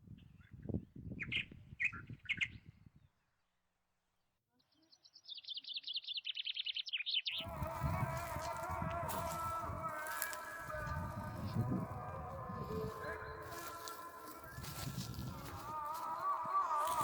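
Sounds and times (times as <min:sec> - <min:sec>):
small birds chirping: 0:04.5 - 0:10.6.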